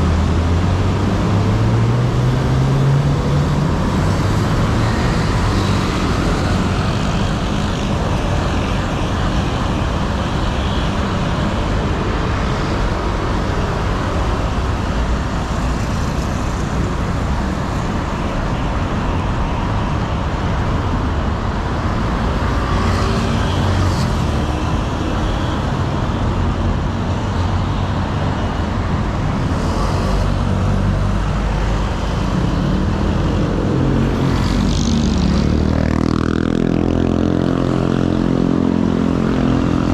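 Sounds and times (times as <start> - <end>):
city street traffic: 0.0 - 39.9.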